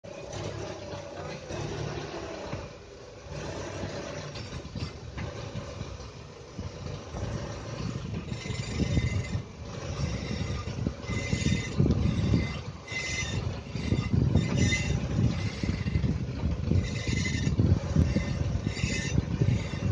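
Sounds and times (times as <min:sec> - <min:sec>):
vehicle rumble: 0:00.0 - 0:19.9
propeller shaft squeaking: 0:00.1 - 0:19.9
thin high squeak: 0:07.8 - 0:19.9.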